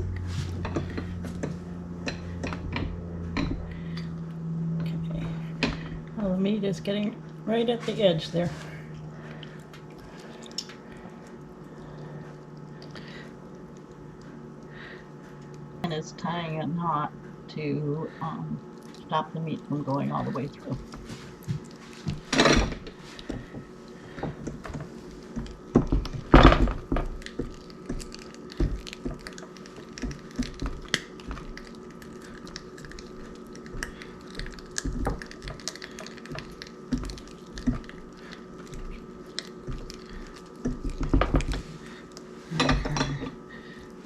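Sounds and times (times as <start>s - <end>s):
hands working sausage stuffer: 0.0s - 4.2s, 18.8s - 44.0s
faint steady hum: 0.0s - 44.0s.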